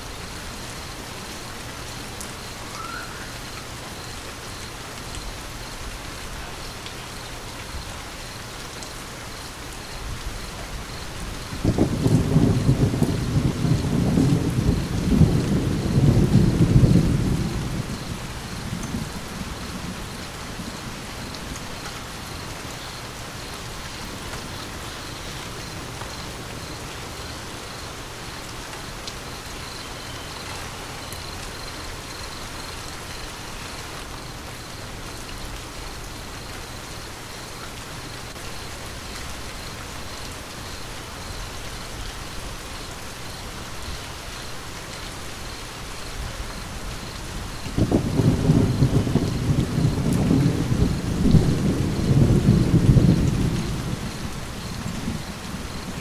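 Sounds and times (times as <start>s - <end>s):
steady rain falling: 0.0s - 56.0s
low thunder rumble: 10.1s - 27.5s, 46.3s - 56.0s.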